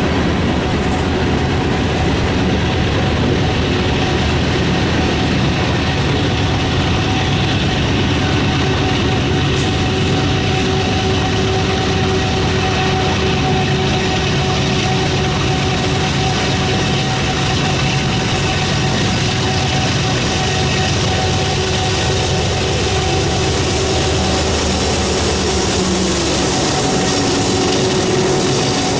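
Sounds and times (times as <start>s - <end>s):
heavy locomotive engine drone: 0.0s - 28.9s
thin steady whine: 0.0s - 28.9s.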